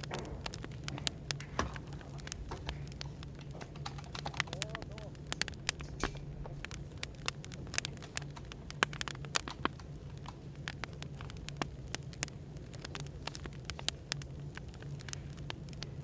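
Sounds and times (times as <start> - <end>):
cafe background hum: 0.0 - 16.0
firewood crackling: 0.0 - 16.0.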